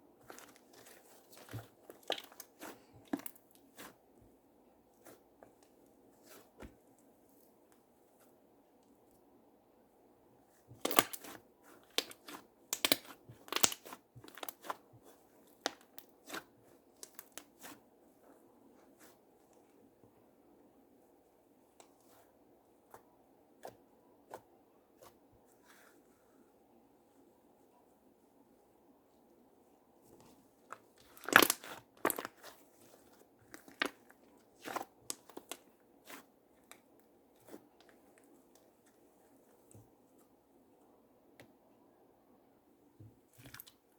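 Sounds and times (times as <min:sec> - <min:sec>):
slime crackling and popping: 0:10.8 - 0:14.8, 0:31.0 - 0:32.6
slime squished by hand: 0:10.8 - 0:17.8, 0:31.0 - 0:37.6.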